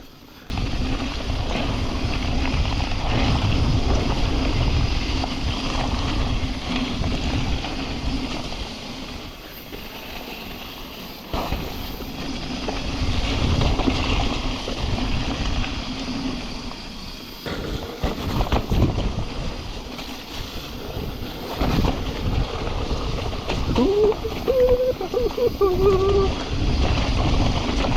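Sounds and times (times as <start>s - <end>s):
bike knocking and rattling: 0.0s - 27.9s
bike tyres rolling: 0.0s - 27.9s
wind buffeting microphone: 0.5s - 8.8s, 17.5s - 27.9s.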